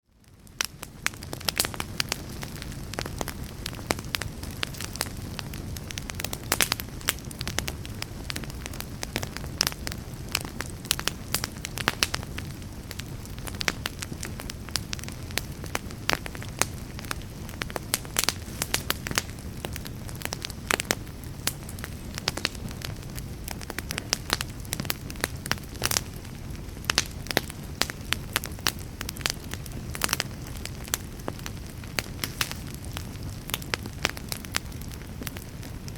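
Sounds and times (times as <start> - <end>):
wood fire crackling and popping: 0.1 - 35.9.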